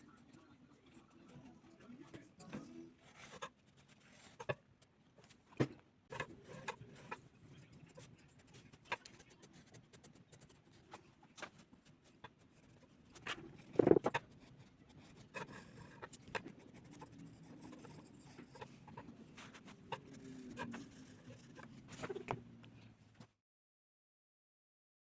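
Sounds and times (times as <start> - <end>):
drawing tool scratching paper: 3.0 - 4.6, 6.1 - 22.4.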